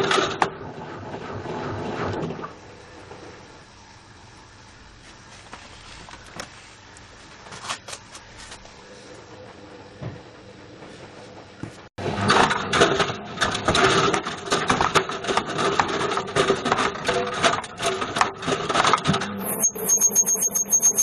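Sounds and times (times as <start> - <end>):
high-pitched pulsing tone: 19.4 - 21.0.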